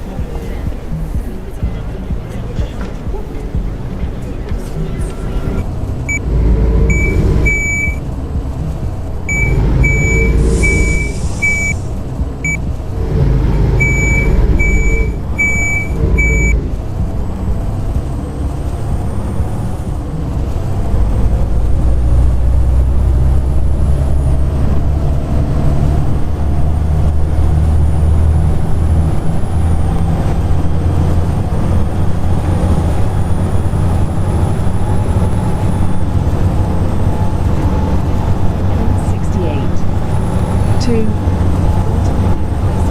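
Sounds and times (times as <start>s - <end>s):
bus engine whining: 0.0s - 42.9s
short high beeps: 6.9s - 8.0s, 9.3s - 11.8s, 13.8s - 16.6s.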